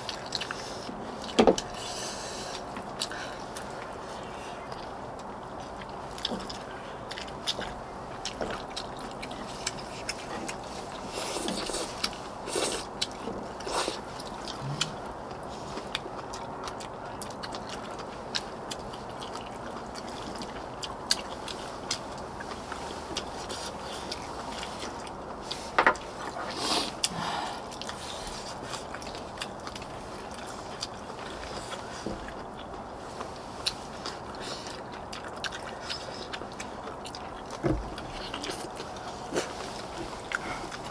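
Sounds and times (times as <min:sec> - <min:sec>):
chewing and slurping: 0:00.0 - 0:40.9.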